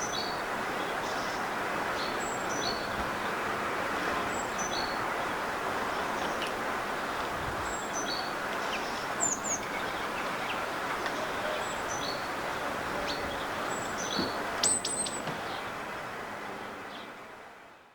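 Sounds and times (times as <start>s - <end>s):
steady background noise: 0.0s - 17.9s
small birds calling: 4.3s - 15.7s.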